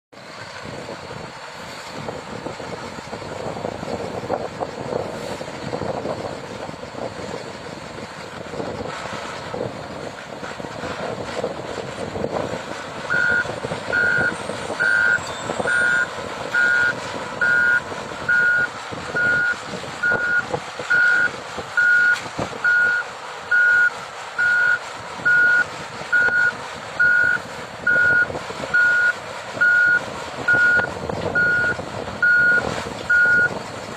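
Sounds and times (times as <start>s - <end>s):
truck backup alarm beeping: 13.1s - 33.6s.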